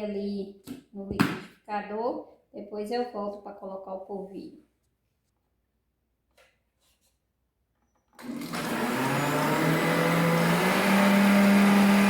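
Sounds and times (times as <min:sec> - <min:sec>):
electric blender motor whine: 0:08.2 - 0:12.0.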